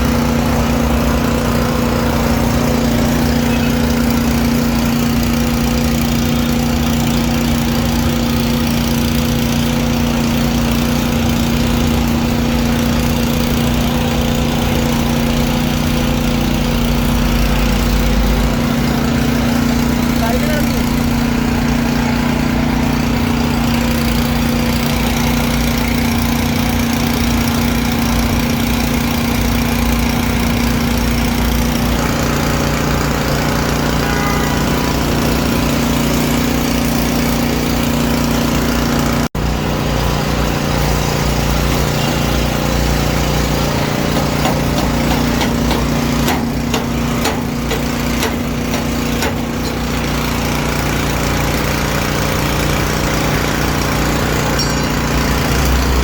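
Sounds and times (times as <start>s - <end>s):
motor humming: 0.0s - 56.0s.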